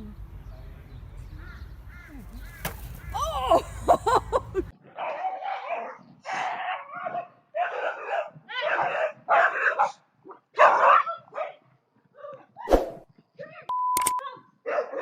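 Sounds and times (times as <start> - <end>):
dog barking: 4.9 - 11.6, 14.6 - 15.0.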